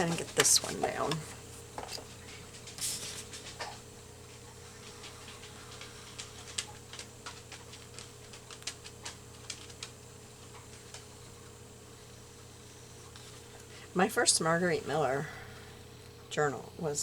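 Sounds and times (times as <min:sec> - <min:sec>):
paper clicks and taps: 0:05.2 - 0:10.0.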